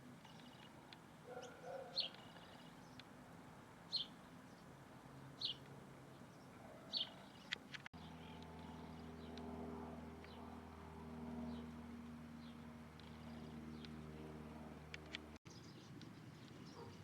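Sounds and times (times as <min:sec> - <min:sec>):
small bird chirping: 0:00.2 - 0:03.1, 0:05.4 - 0:09.4.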